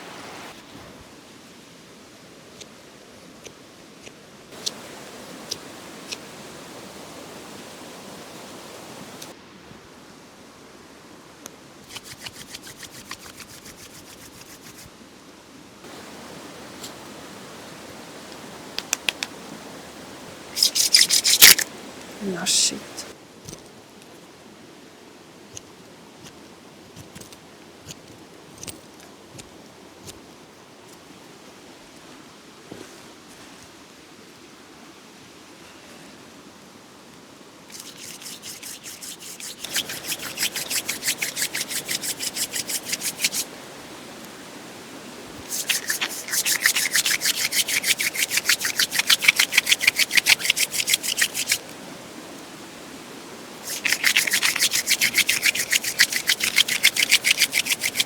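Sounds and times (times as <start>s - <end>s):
rhythmic hand scraping strokes: 11.9s - 14.9s, 20.5s - 21.7s, 37.7s - 43.5s, 45.4s - 51.7s, 53.6s - 58.0s.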